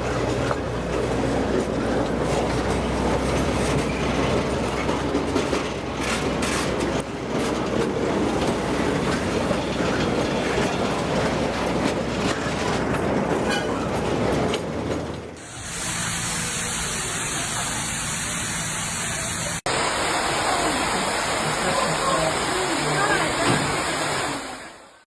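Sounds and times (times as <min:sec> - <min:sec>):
train wheels clattering on rails: 0:00.0 - 0:17.6.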